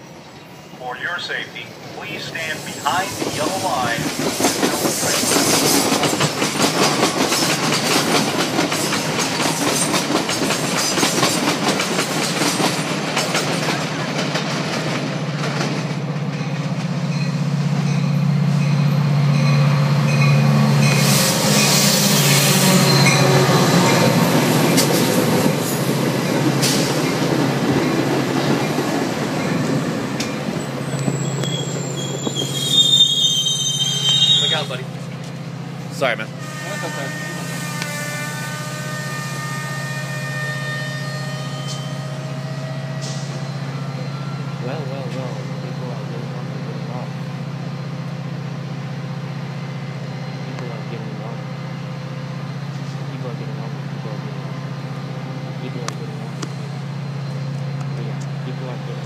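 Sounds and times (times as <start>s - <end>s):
diesel locomotive engine: 0.0s - 59.0s
rail cars clattering over track: 0.9s - 38.0s, 40.8s - 59.0s
wheel and brake squeals: 20.9s - 23.6s, 30.8s - 34.8s, 36.4s - 44.7s.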